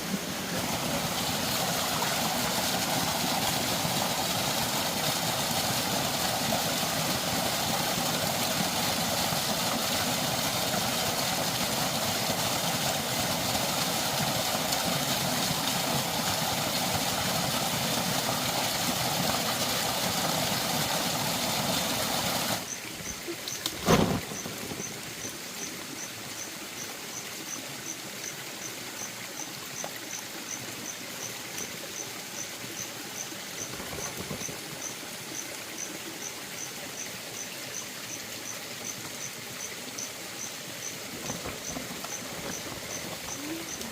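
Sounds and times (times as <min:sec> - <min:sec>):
flowing water: 0:00.0 - 0:43.9.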